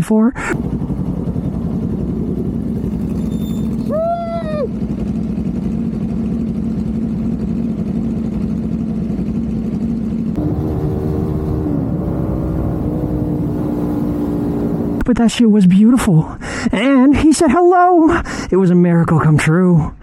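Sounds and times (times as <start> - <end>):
motorcycle engine running: 0.6 - 15.1
rising and falling tone: 10.4 - 15.0.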